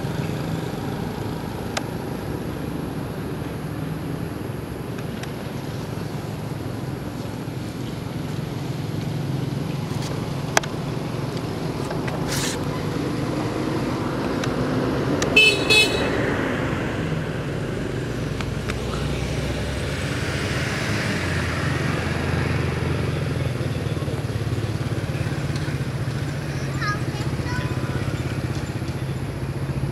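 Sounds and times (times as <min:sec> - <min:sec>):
road traffic: 0:00.0 - 0:29.9
vehicle horn beeps: 0:15.4 - 0:16.3.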